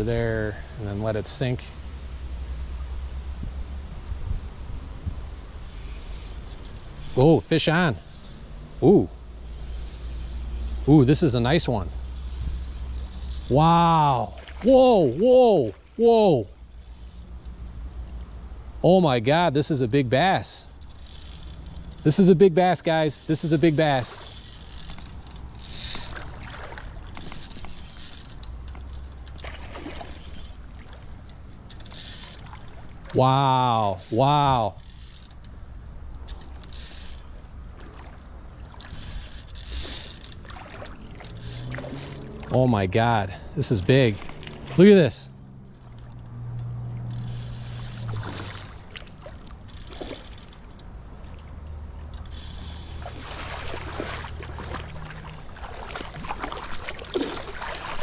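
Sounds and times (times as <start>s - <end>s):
low steady hum: 0.0s - 58.0s
water sloshing and splashing: 5.6s - 18.3s, 19.7s - 58.0s
small clicks and handling noise: 5.7s - 8.6s, 9.2s - 13.5s, 20.6s - 22.3s, 23.2s - 33.0s, 33.9s - 42.6s, 44.0s - 58.0s.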